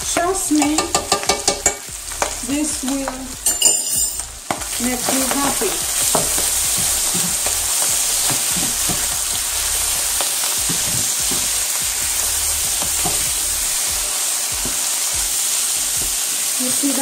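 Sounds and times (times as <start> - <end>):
chicken sizzling in a pan: 0.0 - 3.5, 4.2 - 17.0.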